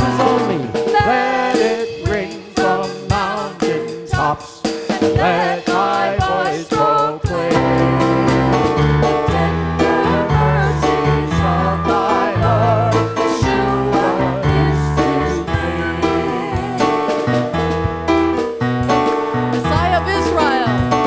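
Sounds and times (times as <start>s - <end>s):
voices singing worship song: 0.0s - 18.0s
keyboard accompaniment: 0.0s - 21.0s.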